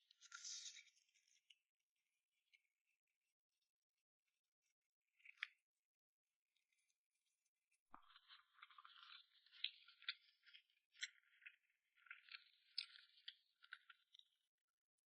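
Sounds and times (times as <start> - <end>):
faint chewing: 7.9 - 14.5.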